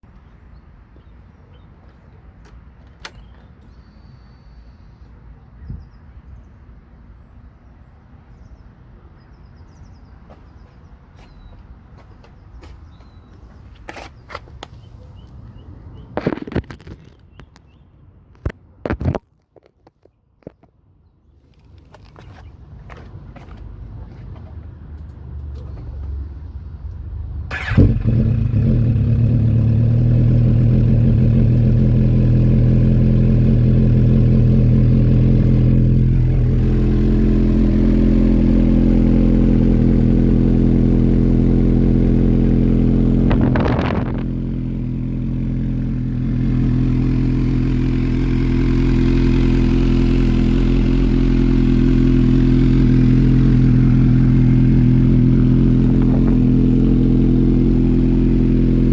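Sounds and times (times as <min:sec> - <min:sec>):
motorcycle engine starting and idling: 0:02.8 - 0:05.2, 0:25.0 - 0:58.9.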